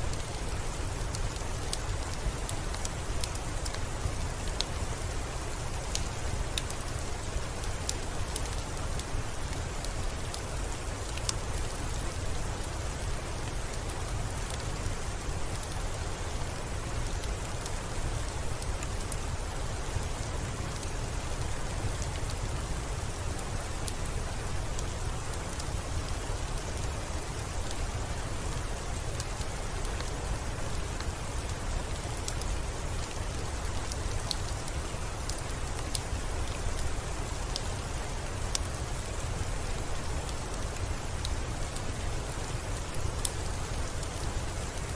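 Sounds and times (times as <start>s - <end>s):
steady rain falling: 0.0s - 44.9s
wood fire crackling: 0.0s - 44.9s.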